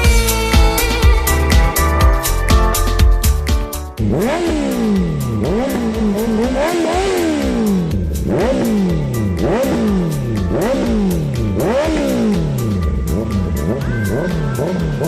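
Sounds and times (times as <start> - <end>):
music with steady beat: 0.0 - 15.0
motorcycle engine revving: 4.0 - 15.0.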